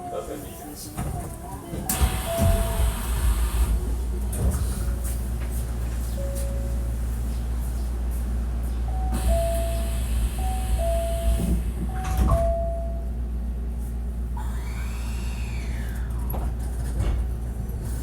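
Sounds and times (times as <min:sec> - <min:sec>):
train inverter whine: 0:01.2 - 0:18.0
sliding doors closing with hiss: 0:01.9 - 0:03.8
two-note door chime: 0:12.0 - 0:13.1.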